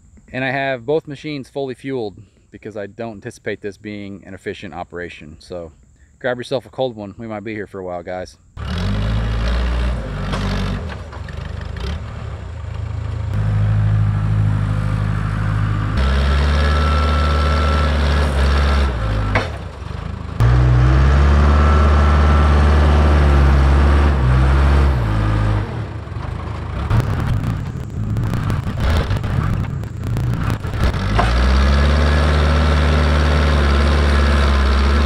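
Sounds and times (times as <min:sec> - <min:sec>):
diesel engine working under load: 0:08.6 - 0:35.0
faint whine: 0:26.8 - 0:31.4.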